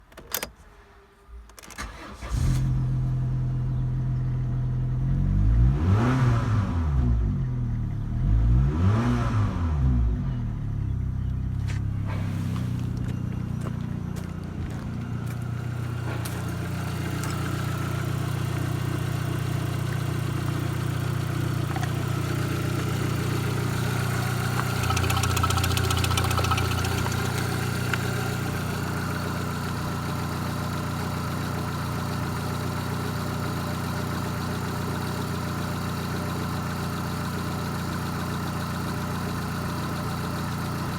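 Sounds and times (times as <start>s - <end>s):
car engine idling: 10.5s - 40.9s.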